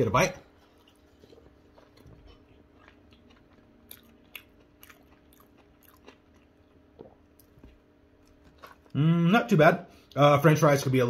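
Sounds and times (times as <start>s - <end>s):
faint steady hum: 0.0s - 11.0s
person chewing food: 0.5s - 9.0s.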